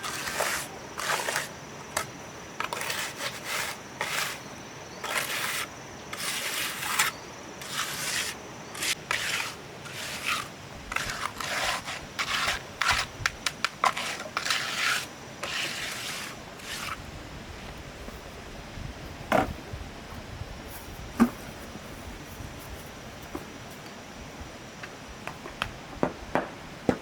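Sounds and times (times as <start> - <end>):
hand tool scraping rough surface: 0.0 - 17.1.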